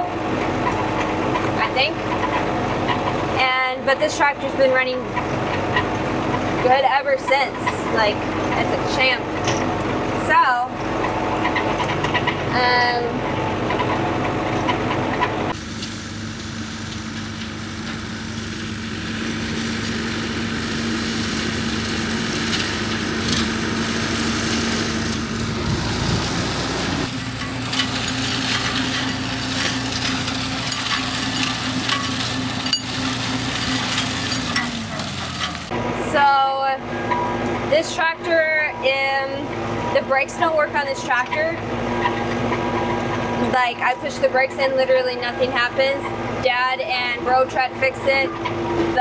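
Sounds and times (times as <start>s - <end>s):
tractor diesel engine running: 0.1s - 36.1s
hiss of working machinery: 15.6s - 35.7s.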